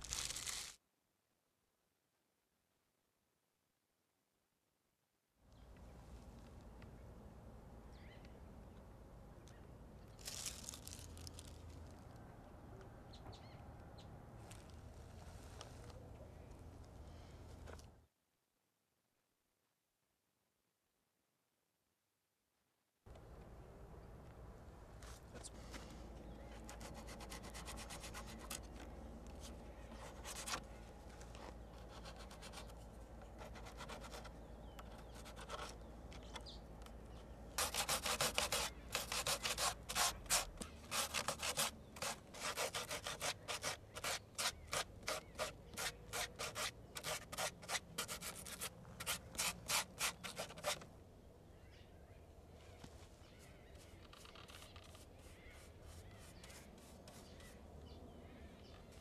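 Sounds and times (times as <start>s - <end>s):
hand sanding strokes: 26.6s - 28.7s, 37.6s - 50.8s, 54.5s - 57.6s.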